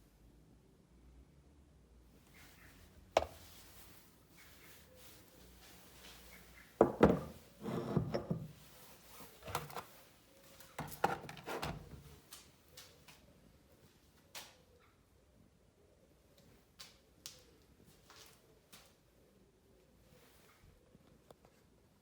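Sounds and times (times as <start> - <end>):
hard knocks and clunks: 6.8 - 8.4.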